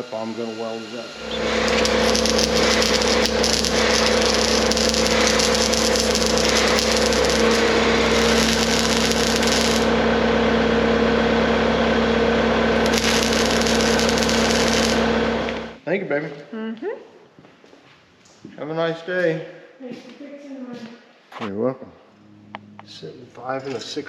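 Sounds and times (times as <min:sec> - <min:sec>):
electrical hum: 0:00.0 - 0:15.9
welding arc crackling: 0:01.2 - 0:15.8.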